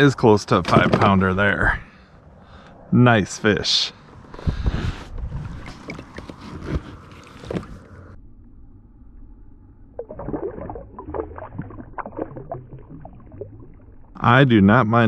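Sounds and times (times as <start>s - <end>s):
knocks and clicks of handled gear: 5.4s - 8.0s.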